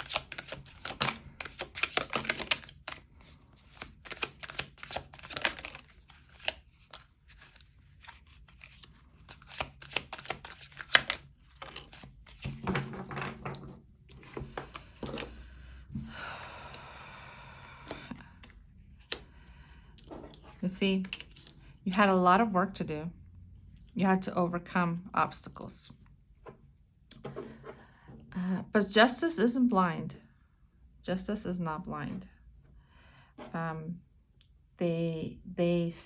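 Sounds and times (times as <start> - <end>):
cards being shuffled: 0.0 - 16.8, 17.7 - 19.3, 20.0 - 21.8.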